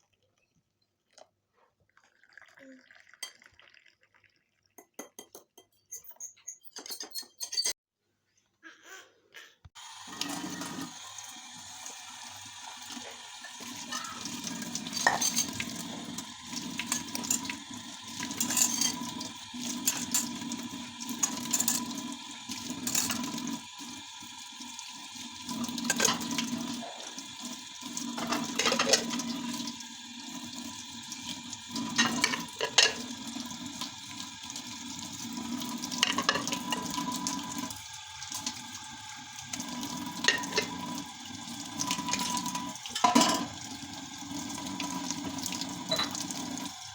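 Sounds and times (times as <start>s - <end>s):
water running from a tap: 9.8s - 46.9s
dishes and utensils clinking: 13.4s - 23.5s, 25.8s - 26.7s, 28.2s - 29.4s, 31.8s - 33.1s, 36.0s - 37.2s, 40.2s - 40.8s, 41.9s - 43.6s, 45.8s - 46.3s.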